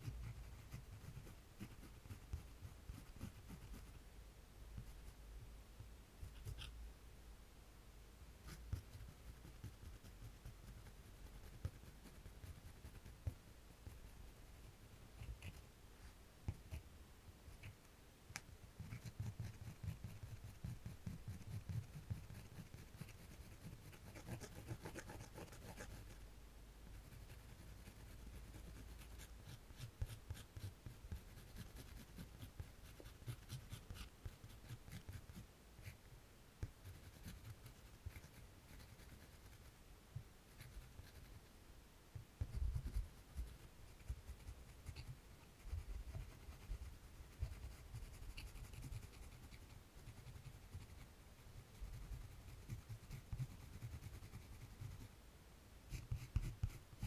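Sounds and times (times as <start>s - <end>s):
drawing tool scratching on paper: 18.8s - 26.2s, 26.9s - 36.0s, 55.9s - 57.0s.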